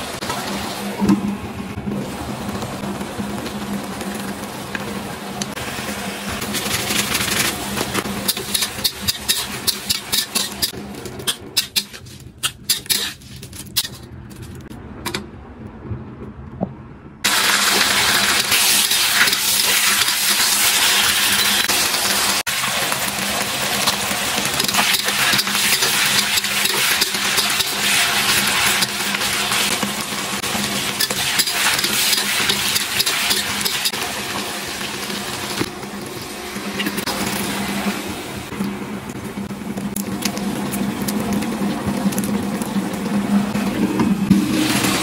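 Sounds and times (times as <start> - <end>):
chicken frying in hot oil: 0.0 - 14.0, 17.2 - 45.0
food sizzling: 0.0 - 14.0, 17.2 - 45.0
metal spatula scraping a wok: 8.3 - 14.6.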